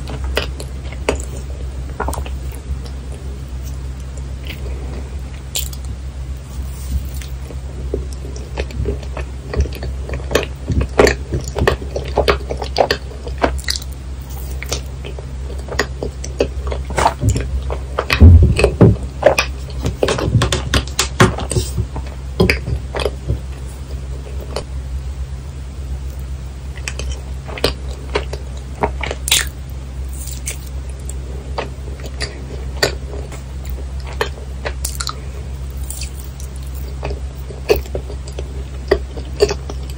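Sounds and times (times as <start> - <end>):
low steady hum: 0.0 - 39.9
sticky chewing clicks and squelches: 5.4 - 6.0, 7.2 - 24.7, 26.1 - 39.9.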